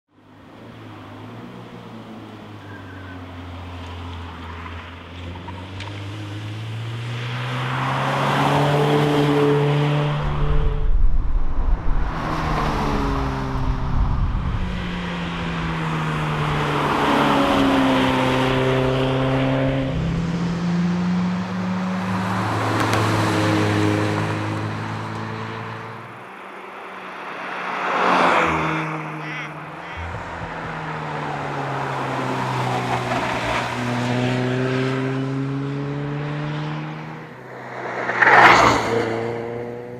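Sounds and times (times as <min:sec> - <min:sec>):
car engine accelerating: 0:29.6 - 0:39.9
loud rush of noise: 0:37.2 - 0:39.5.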